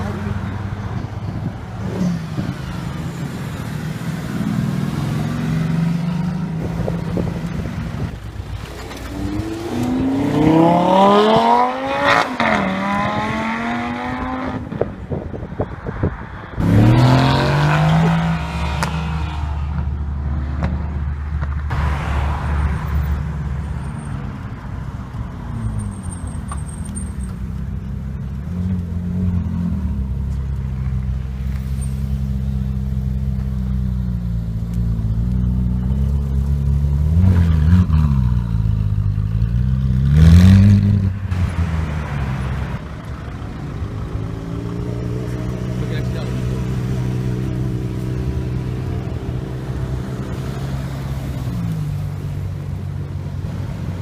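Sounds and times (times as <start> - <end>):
car engines idling: 0.0 - 9.8, 22.6 - 37.6, 41.1 - 54.0.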